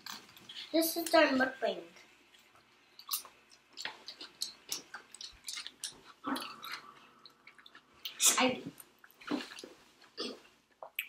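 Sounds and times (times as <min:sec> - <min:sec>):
people chewing: 0:02.2 - 0:11.0.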